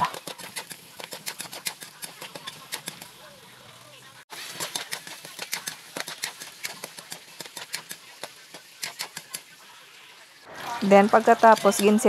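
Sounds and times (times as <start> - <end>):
vegetables frying in oil: 4.0 - 12.0
sharp oil pops: 4.6 - 9.4.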